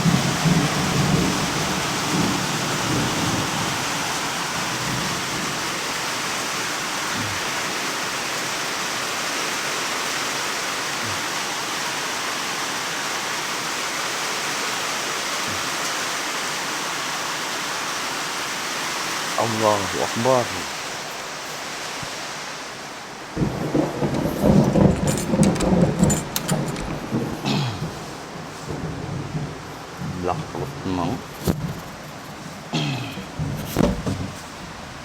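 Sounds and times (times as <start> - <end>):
thunder rumble: 0.0 - 5.6, 23.3 - 35.0
heavy rain: 0.0 - 35.0.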